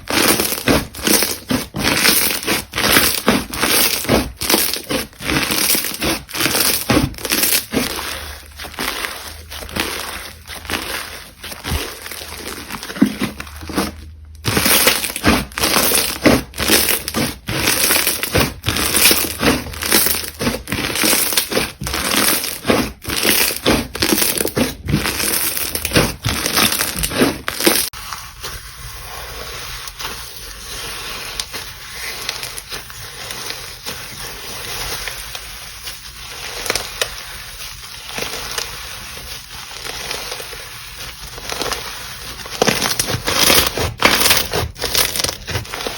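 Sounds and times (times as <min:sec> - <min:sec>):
slime squishing and popping: 0:00.0 - 0:28.0, 0:41.3 - 0:45.9
slime fine crackling: 0:00.0 - 0:28.5, 0:36.1 - 0:45.9.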